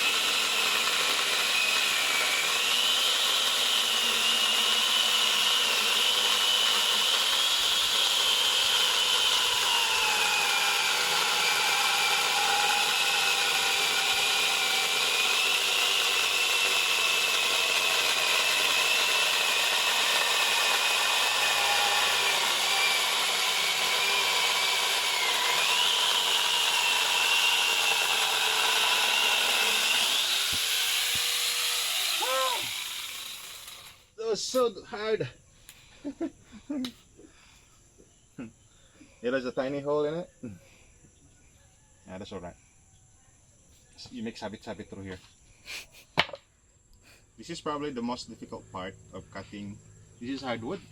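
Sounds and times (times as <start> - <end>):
chainsaw attachment cutting log: 0.0 - 34.1
motor winding down: 0.0 - 34.1.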